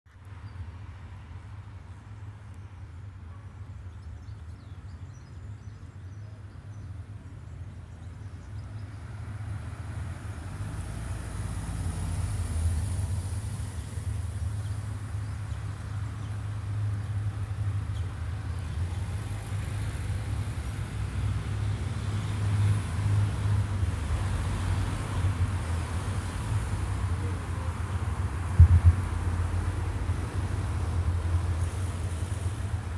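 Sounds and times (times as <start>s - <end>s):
low rumble: 28.4s - 31.2s
brief knock: 28.6s - 29.2s.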